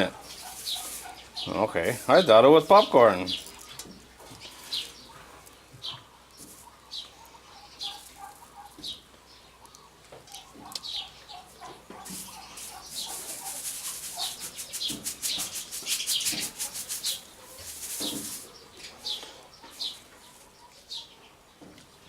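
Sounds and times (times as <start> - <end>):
small birds chirping: 0.0 - 22.0
fast rattling bird notes: 12.0 - 19.2.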